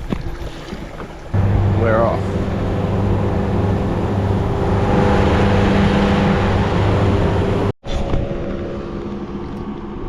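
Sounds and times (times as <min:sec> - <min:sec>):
outboard motor running: 0:00.0 - 0:07.7
rush of wind and water: 0:00.0 - 0:10.0.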